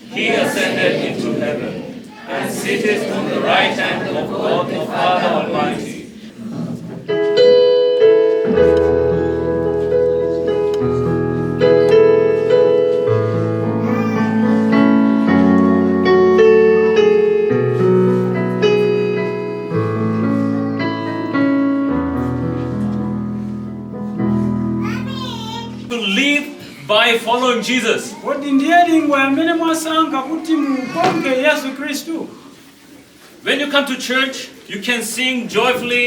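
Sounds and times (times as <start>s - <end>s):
piano chords: 7.0s - 26.1s.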